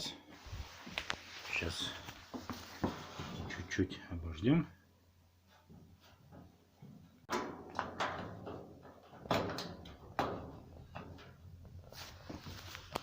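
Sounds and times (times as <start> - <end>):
knocks and clatters of handling: 5.5 - 13.0.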